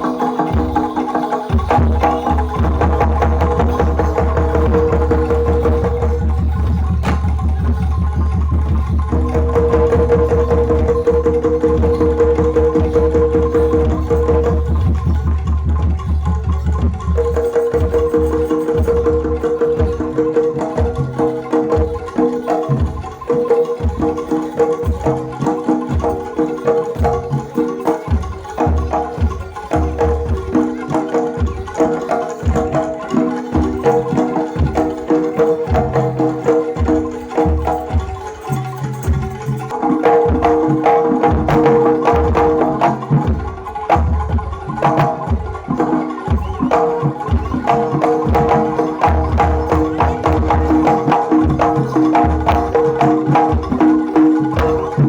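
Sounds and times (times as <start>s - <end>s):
drums beating fast rhythm: 0.0s - 55.0s
gamelan-style ensemble music: 0.0s - 55.0s
bass drum thumps: 6.6s - 8.1s.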